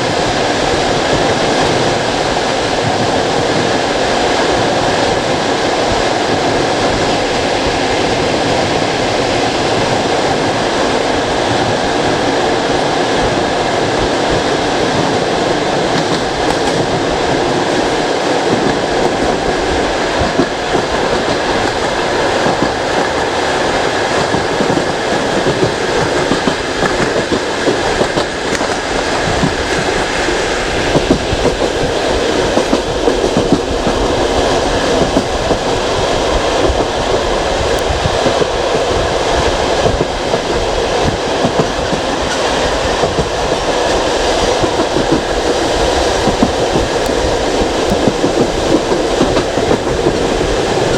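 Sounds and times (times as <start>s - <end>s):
train wheels rumbling on rails: 0.0s - 50.9s
track clicks: 9.4s - 50.9s.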